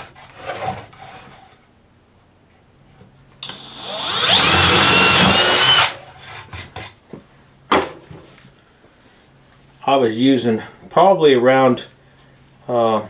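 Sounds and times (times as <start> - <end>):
power drill boring wood: 3.4 - 6.0.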